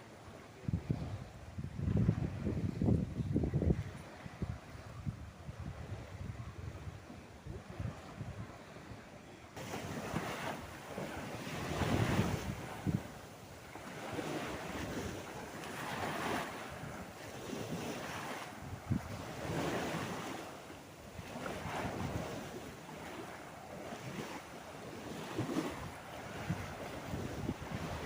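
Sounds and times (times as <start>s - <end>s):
sea waves washing onto shore: 9.6s - 28.0s.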